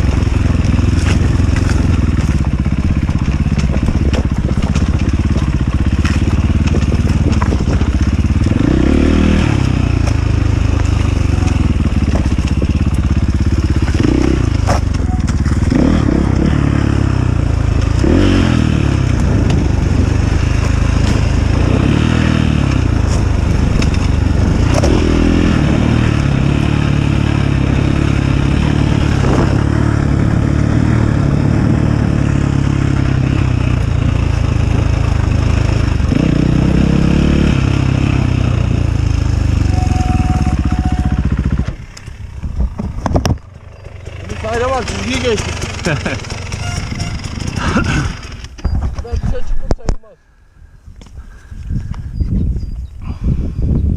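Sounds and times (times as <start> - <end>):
knocks and rattles over rough ground: 0.0 - 36.6, 37.7 - 50.2
motorcycle engine revving: 0.0 - 49.2.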